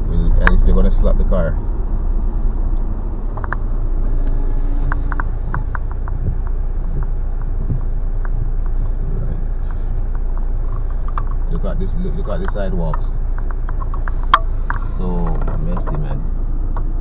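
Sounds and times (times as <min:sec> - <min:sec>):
car engine and tyres rumbling: 0:00.0 - 0:17.0
light ticks: 0:02.6 - 0:17.0.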